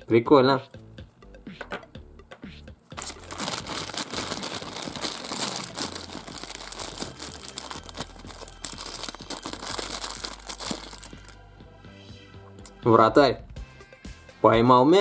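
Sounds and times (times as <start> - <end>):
plastic bag crinkling: 3.0 - 11.4.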